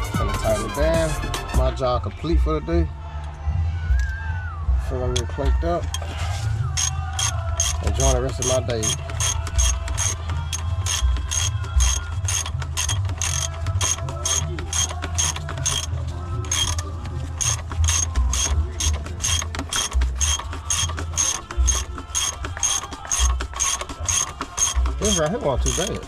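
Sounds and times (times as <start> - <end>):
ratchet wrench clicking: 5.2 - 6.1, 6.8 - 26.0.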